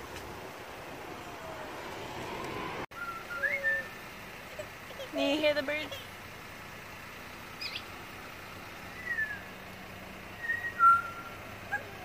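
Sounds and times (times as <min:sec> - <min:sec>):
birds whistling: 0:02.9 - 0:04.0, 0:07.6 - 0:08.0, 0:08.9 - 0:09.6, 0:10.4 - 0:11.9.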